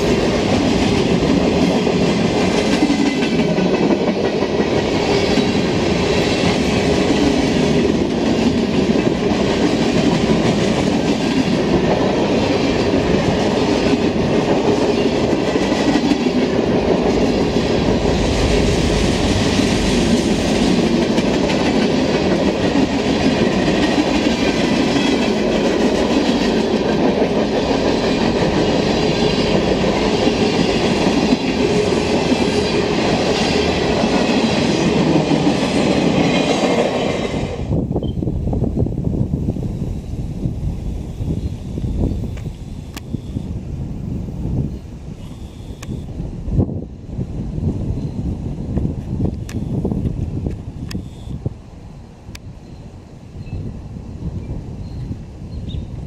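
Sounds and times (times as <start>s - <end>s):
steel wheels rumbling on rails: 0.0s - 44.8s.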